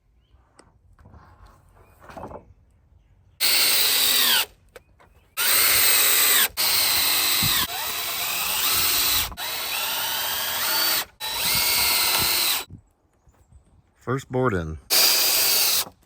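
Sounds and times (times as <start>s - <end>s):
power drill driving screws: 3.4s - 4.5s, 5.4s - 12.7s, 14.9s - 16.0s.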